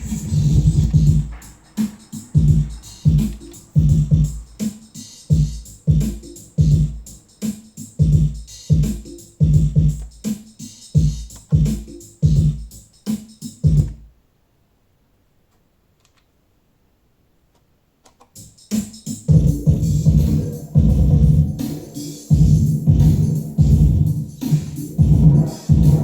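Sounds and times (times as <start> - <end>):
synth bass line: 0.0 - 1.5, 19.4 - 26.0
drum machine beat: 0.0 - 14.1, 18.4 - 26.0.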